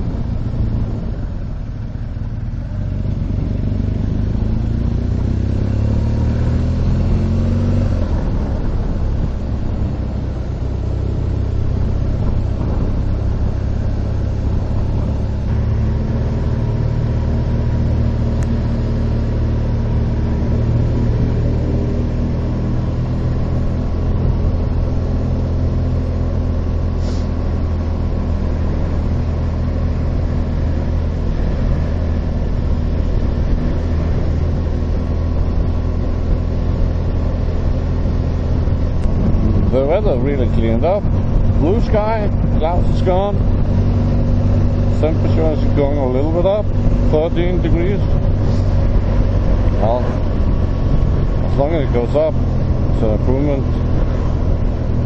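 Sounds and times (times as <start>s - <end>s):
motorcycle engine accelerating: 0.0s - 55.0s
wind rush: 3.2s - 15.6s, 30.8s - 45.8s, 46.5s - 55.0s.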